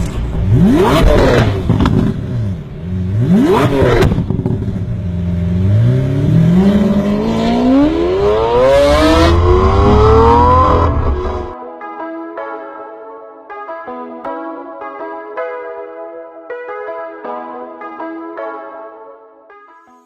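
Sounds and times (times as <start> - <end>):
turbocharged car engine revving: 0.0 - 11.6.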